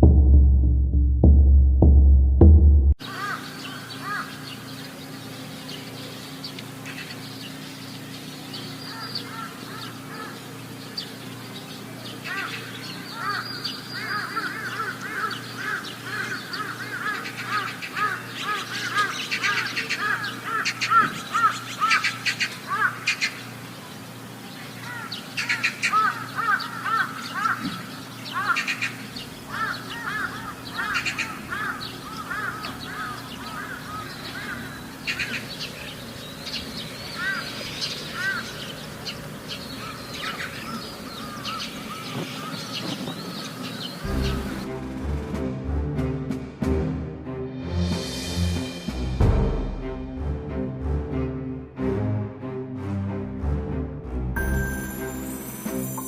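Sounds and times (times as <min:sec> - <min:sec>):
birds chirping: 0:03.0 - 0:45.0.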